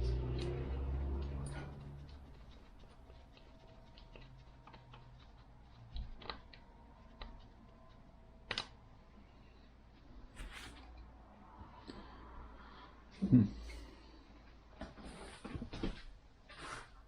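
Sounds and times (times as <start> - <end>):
light clicks and taps on parts: 0.0 - 8.8.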